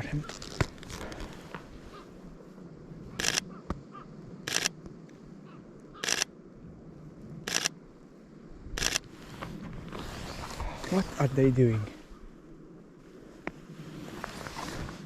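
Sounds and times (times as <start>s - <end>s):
camera shutter clicks: 3.2s - 3.5s, 4.5s - 4.8s, 6.0s - 6.3s, 7.5s - 7.8s, 8.8s - 9.1s.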